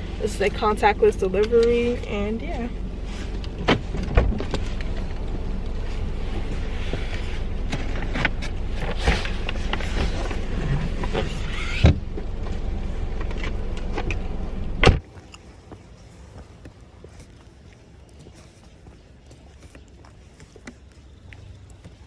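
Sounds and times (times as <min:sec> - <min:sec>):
car rumble: 0:00.0 - 0:17.3.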